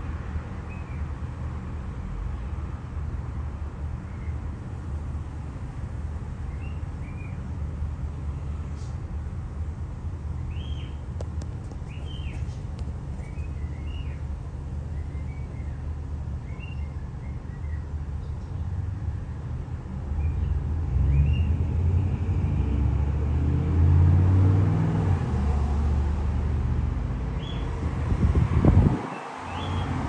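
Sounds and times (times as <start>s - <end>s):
small birds chirping: 6.4s - 7.4s, 10.5s - 18.8s, 27.3s - 27.7s, 29.1s - 30.0s.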